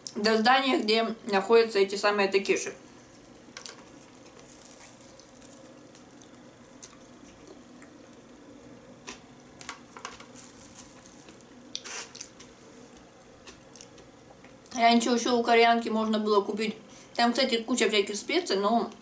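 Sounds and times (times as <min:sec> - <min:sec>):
faint steady hum: 0:00.0 - 0:19.0
wet chewing mouth sounds: 0:04.5 - 0:08.2, 0:11.7 - 0:14.4.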